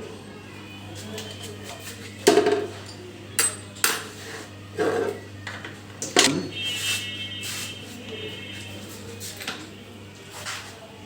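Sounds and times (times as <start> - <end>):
metal tools clanking: 6.0 - 6.6.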